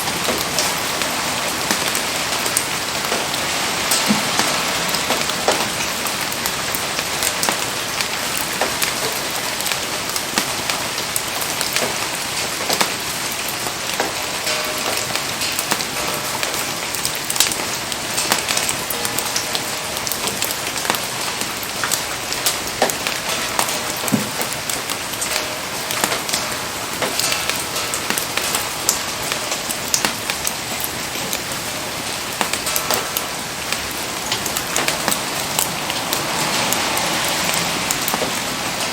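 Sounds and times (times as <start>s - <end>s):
raindrops ticking on surfaces: 0.0s - 38.9s
steady rain hiss: 0.0s - 38.9s.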